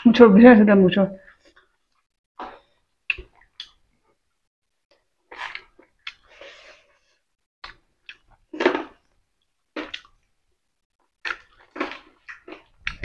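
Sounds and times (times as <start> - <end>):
chewing and lip-smacking: 1.3 - 4.2, 4.9 - 6.4, 7.6 - 9.0, 9.7 - 10.3, 11.0 - 13.0.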